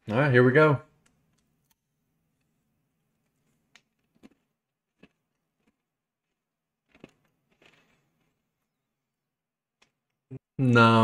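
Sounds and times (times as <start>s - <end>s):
crisp biscuit crunching: 1.0s - 8.8s.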